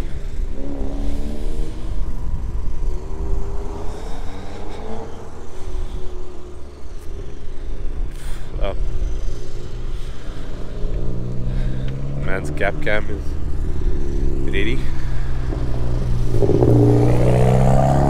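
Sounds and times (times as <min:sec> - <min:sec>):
car engine accelerating: 0:00.0 - 0:18.0
low rumble: 0:13.2 - 0:18.0.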